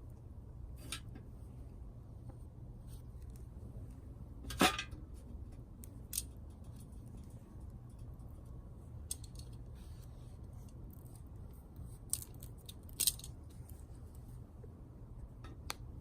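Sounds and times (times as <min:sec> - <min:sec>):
low steady rumble: 0:00.0 - 0:16.0
sharp clicks and snaps: 0:15.5 - 0:15.9.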